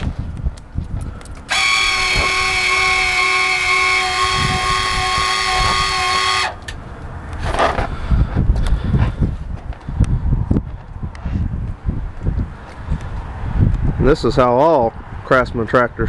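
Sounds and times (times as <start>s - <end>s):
electric actuator whine: 1.5s - 6.8s.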